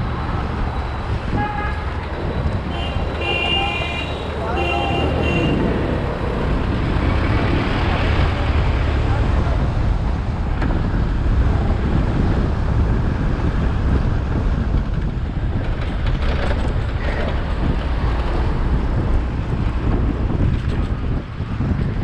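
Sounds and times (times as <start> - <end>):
scooter engine and road rumble: 0.0 - 22.0
wind buffeting microphone: 0.0 - 22.0.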